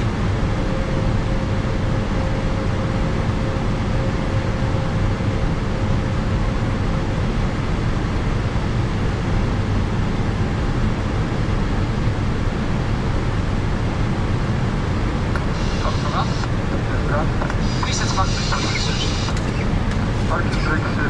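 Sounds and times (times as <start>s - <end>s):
cockpit engine rumble and hiss: 0.0s - 21.0s
faint steady tone: 15.4s - 16.5s.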